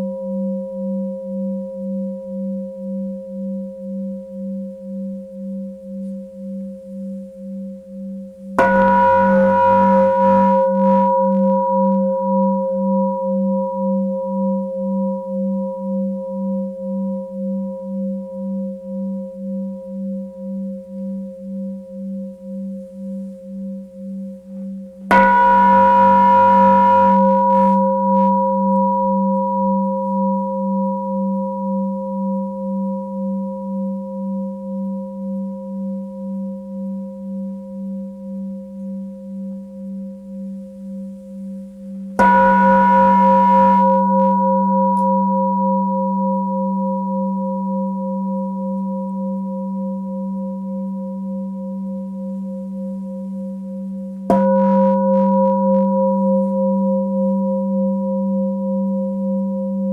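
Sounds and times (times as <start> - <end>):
singing bowl ringing: 8.6 - 22.8, 25.1 - 33.8, 42.2 - 59.9.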